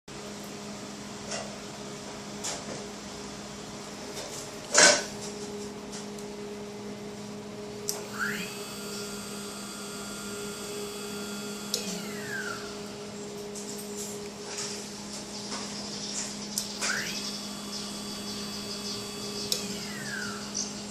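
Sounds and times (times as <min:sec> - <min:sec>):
cnc machine humming: 0:06.7 - 0:15.2, 0:16.5 - 0:20.9
stepper motors whining: 0:07.9 - 0:20.9.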